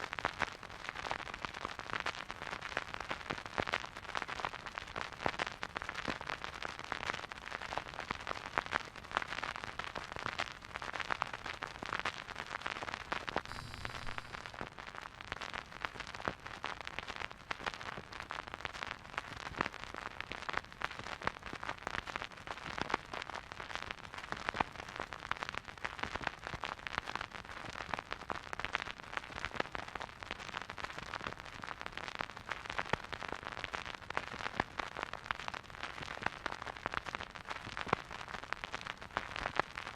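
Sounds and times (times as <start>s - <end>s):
vinyl record crackle: 0.1s - 39.9s.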